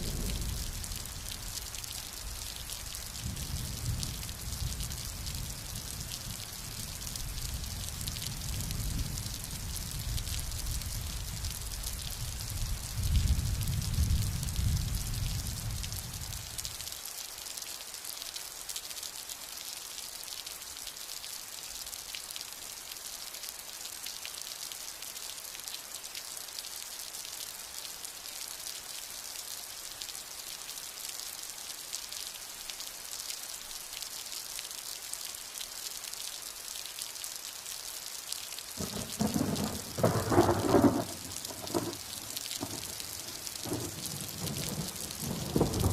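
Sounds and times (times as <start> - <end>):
thunder rumble: 0.0 - 1.4, 38.8 - 45.9
steady rain: 0.0 - 45.9
sharp thunderclap: 38.8 - 43.0, 43.6 - 45.9.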